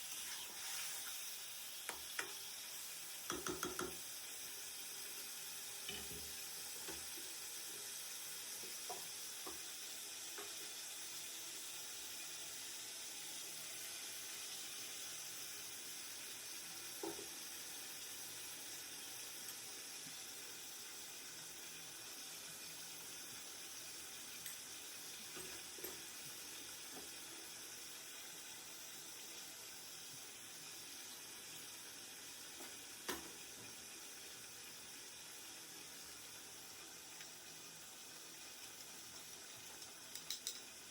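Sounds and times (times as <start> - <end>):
curry sizzling in a pan: 0.0 - 40.9
spatula knocking against pan: 3.3 - 4.0.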